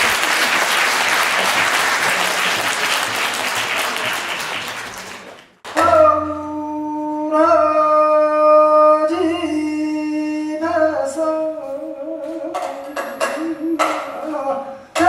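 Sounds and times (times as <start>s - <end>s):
person singing folk song unaccompanied: 5.7s - 15.0s.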